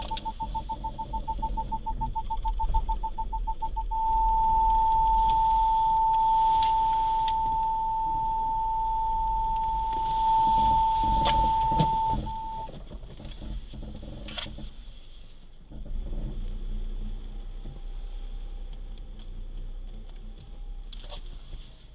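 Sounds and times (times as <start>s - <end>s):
electronic beep tone: 0.0s - 12.7s
faint low rumble: 0.0s - 21.9s.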